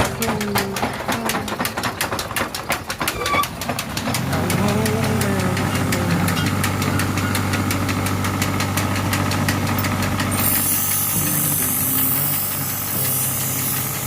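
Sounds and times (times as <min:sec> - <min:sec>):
motor hum: 0:00.0 - 0:14.0
power hammer blows: 0:00.0 - 0:14.0
high hiss: 0:10.4 - 0:14.0.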